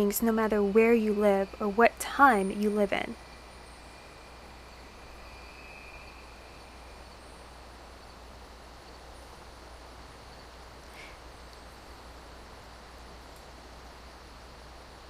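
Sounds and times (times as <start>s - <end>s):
constant low hum: 0.0s - 15.0s.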